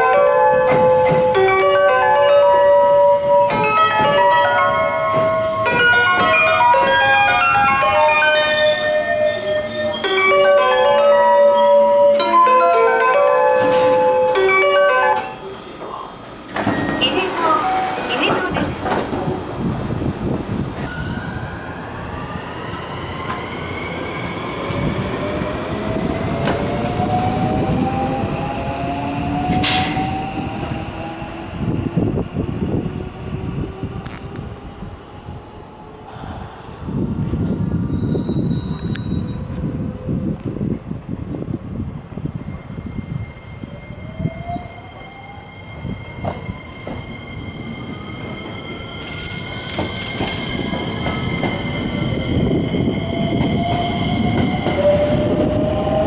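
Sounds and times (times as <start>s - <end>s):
train wheels rumbling: 15.2s - 56.0s.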